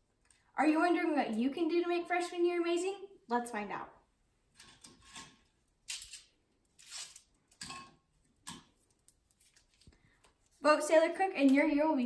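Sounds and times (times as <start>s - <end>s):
wrapper rustling and crackling: 5.9s - 7.3s.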